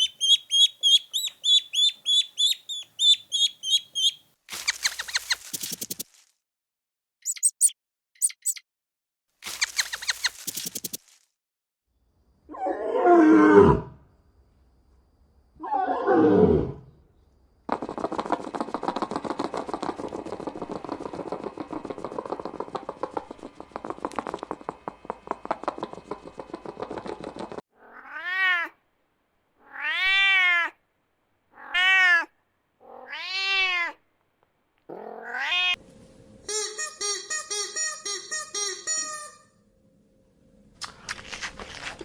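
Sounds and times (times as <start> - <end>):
rough rapidly pulsing sound: 17.7 - 27.6
cat meowing: 27.8 - 28.8, 29.6 - 30.8, 31.5 - 34.0, 34.9 - 35.8.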